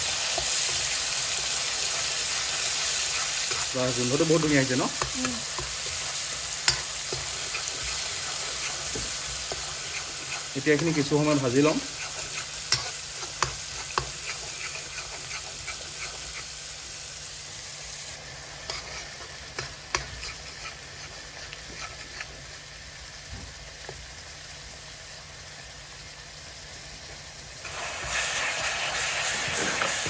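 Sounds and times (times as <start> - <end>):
paste sizzling in hot oil: 0.0 - 30.0
spoon scraping metal pan: 3.0 - 16.5, 18.7 - 22.3.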